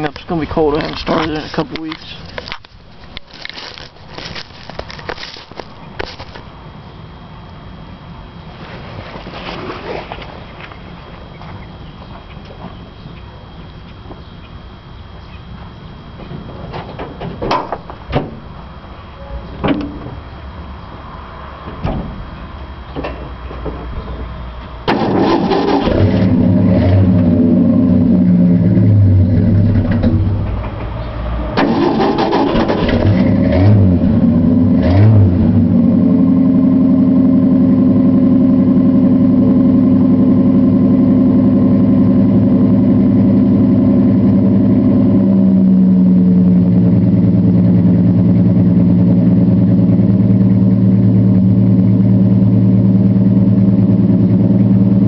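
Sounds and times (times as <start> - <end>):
car engine revving and idling: 24.8 - 55.0.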